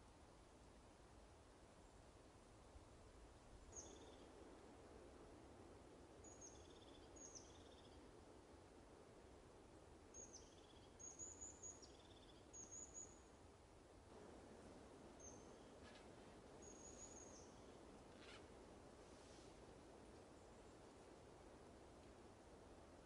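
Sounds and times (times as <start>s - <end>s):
low steady background noise: 0.0s - 23.0s
small birds chirping: 15.2s - 18.4s.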